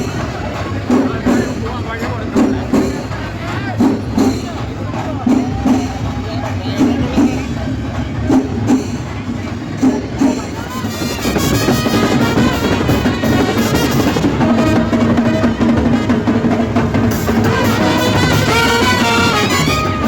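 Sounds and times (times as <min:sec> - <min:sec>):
snare and bass drum roll: 0:00.0 - 0:20.0
brass horns playing melody: 0:10.7 - 0:20.0.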